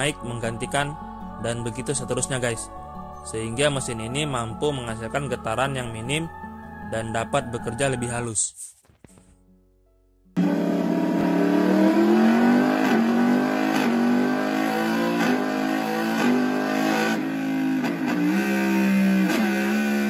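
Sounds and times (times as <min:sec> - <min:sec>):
motorcycle engine revving: 0:10.4 - 0:20.0.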